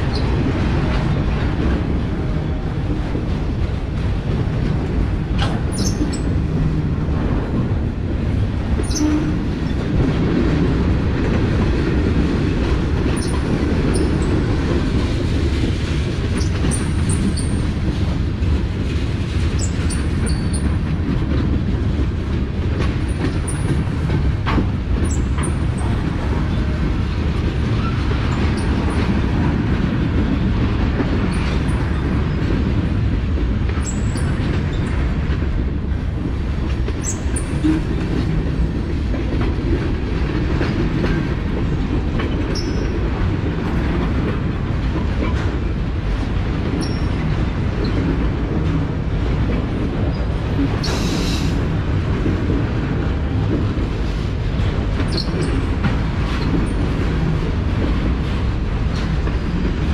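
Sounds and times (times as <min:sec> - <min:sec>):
train wheels rumbling on rail: 0:00.0 - 0:59.9
high wheel squeaks: 0:55.1 - 0:55.6.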